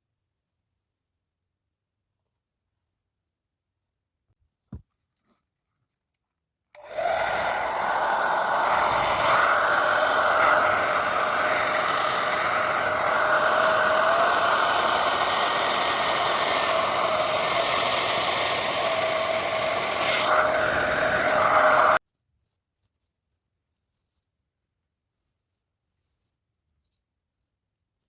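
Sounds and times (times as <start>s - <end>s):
hair dryer running: 6.8s - 22.0s.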